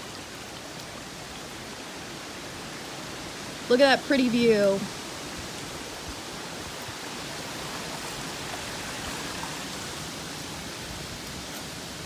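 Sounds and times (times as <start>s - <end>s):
creek water over waterfall: 0.0s - 12.0s.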